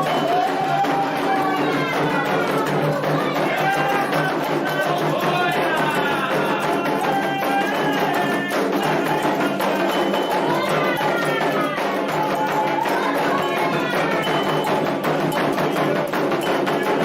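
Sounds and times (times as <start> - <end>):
hand drums: 0.0 - 17.0
people chanting: 0.0 - 17.0.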